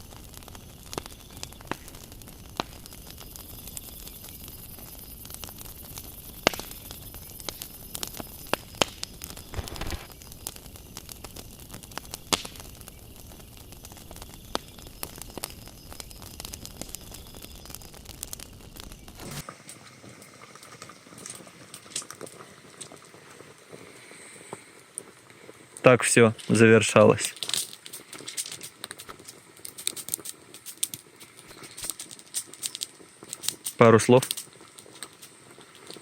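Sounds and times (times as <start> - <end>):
fire crackling: 0.0 - 36.0
low steady hiss: 0.0 - 36.0
sharp pops: 0.9 - 19.4
short rushing noise: 9.5 - 10.1, 19.1 - 19.4.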